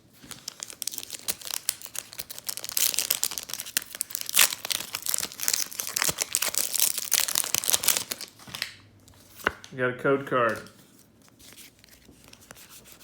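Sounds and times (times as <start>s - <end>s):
foil wrapper tearing and crinkling: 0.3s - 8.7s.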